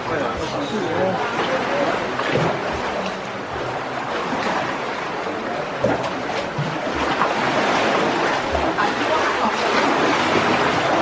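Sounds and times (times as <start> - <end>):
rushing seawater and wind: 6.5 - 11.0.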